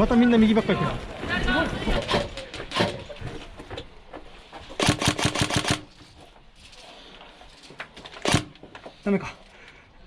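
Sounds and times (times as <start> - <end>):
airsoft gun rapid fire: 4.8 - 5.9, 8.2 - 8.6
faint gunfire clicks: 4.8 - 5.9.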